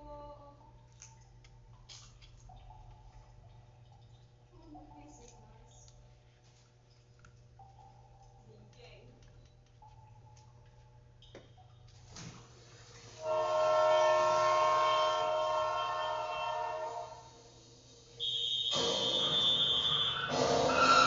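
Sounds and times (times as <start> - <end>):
horn-like held chord: 13.2 - 17.4.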